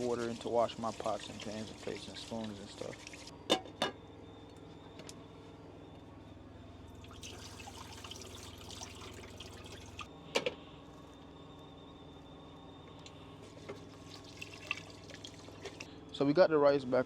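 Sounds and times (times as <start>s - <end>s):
water pouring and trickling: 0.0s - 3.3s, 6.9s - 10.1s, 13.8s - 15.9s.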